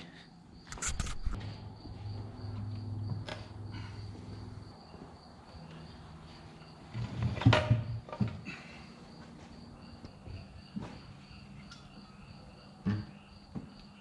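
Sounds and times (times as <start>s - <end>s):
knocks and clunks of heavy parts: 7.0s - 8.5s
faint high insect chirring: 9.0s - 14.0s.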